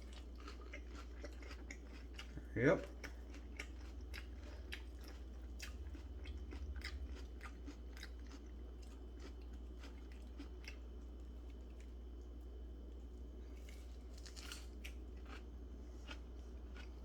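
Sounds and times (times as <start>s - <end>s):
person chewing a sandwich: 0.0s - 17.0s.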